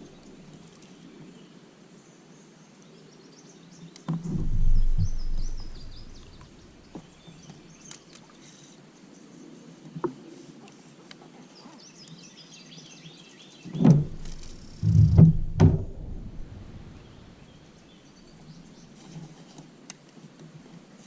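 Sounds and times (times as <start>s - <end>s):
bird chirping and warbling: 4.2s - 6.8s
low rumble: 4.3s - 6.8s, 13.9s - 17.6s
sharp knocks: 13.8s - 16.9s.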